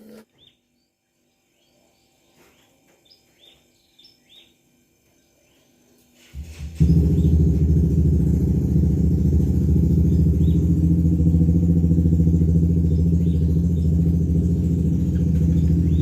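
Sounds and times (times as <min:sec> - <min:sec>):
small engine starting and humming: 0:06.2 - 0:16.0.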